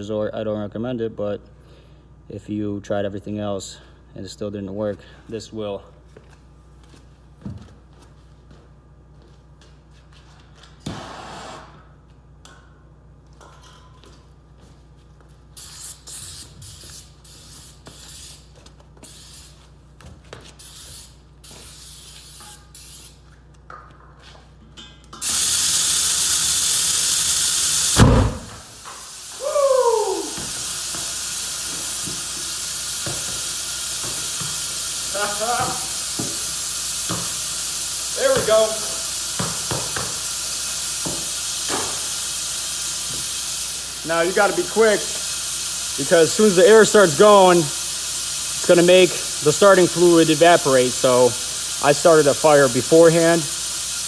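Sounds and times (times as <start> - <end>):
air hissing into tire: 10.9 - 11.8, 15.6 - 19.7, 20.6 - 23.2, 25.2 - 54.0
aerosol spray bursts: 15.6 - 19.6, 20.6 - 23.2, 25.2 - 54.0
loud whoomp of ignition: 25.2 - 30.9
loud steady hiss: 25.2 - 54.0.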